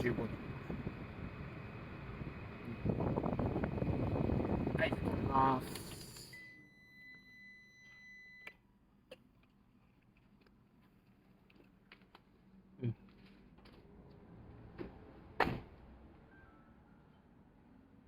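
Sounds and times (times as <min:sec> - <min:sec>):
faint high whine: 0:04.7 - 0:08.6.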